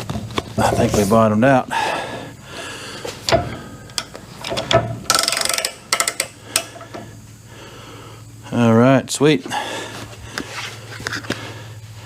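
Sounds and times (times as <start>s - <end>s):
fast ratcheting rattle: 3.9s - 6.8s.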